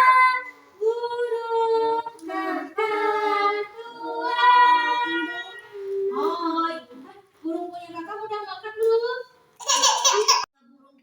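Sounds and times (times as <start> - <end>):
children singing: 0.0 - 7.2.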